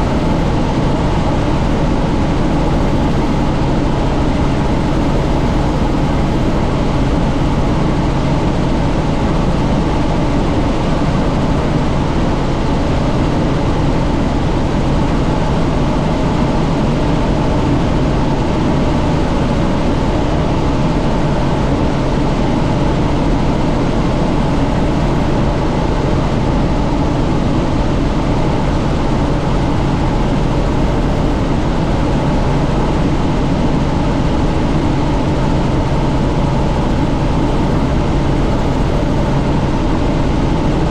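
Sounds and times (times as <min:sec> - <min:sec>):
helicopter rotor and turbine drone: 0:00.0 - 0:40.9
rushing wind: 0:23.9 - 0:40.9.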